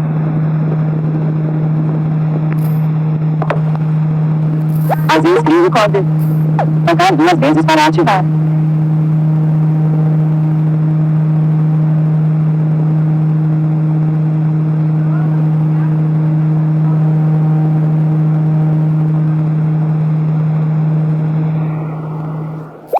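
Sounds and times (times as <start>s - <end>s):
fan motor hum: 0.0s - 22.9s.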